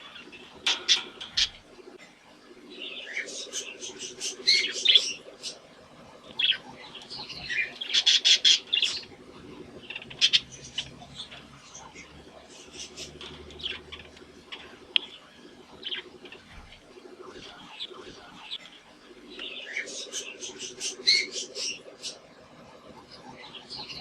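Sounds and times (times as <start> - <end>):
budgerigars chirping: 0.0 - 2.0, 2.6 - 22.2
low warbling: 0.0 - 24.0.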